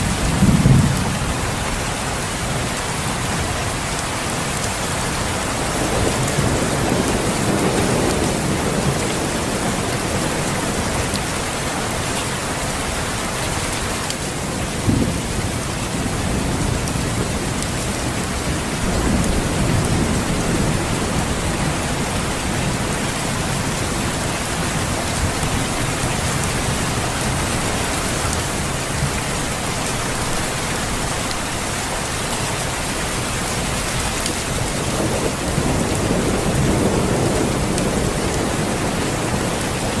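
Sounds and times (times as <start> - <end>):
thunder rumbling: 0.0 - 1.8, 14.3 - 31.1, 33.5 - 40.0
heavy rain: 0.0 - 40.0.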